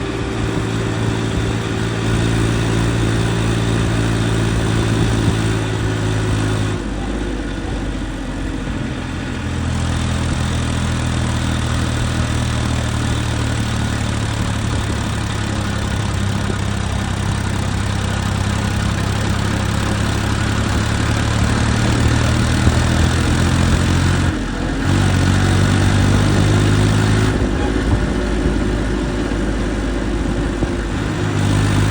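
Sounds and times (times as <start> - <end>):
diesel tractor engine throbbing: 0.0 - 31.9.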